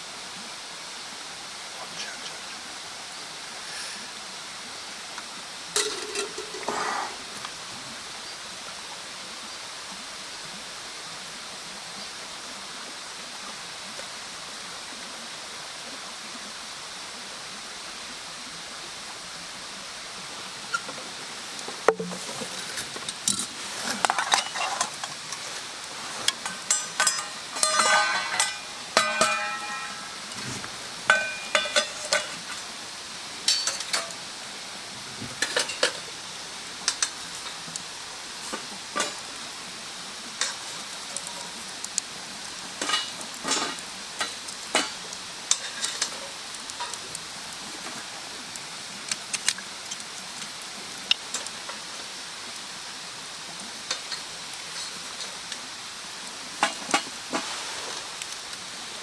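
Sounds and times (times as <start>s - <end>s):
steady hiss: 0.0s - 59.0s
wood fire crackling and popping: 20.4s - 34.4s, 35.2s - 59.0s.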